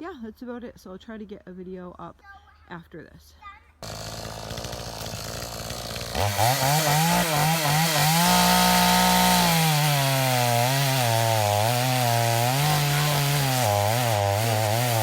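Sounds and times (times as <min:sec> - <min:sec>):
chainsaw revving: 0:03.8 - 0:15.0.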